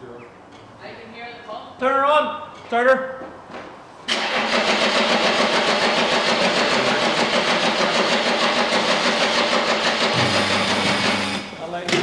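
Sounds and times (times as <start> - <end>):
diesel engine cranking: 4.1 - 12.0.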